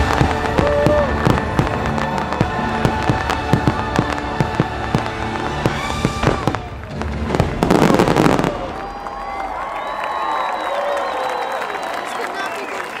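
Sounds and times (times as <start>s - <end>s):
music playing: 0.0s - 8.5s
fireworks bursts and crackle: 0.0s - 11.2s.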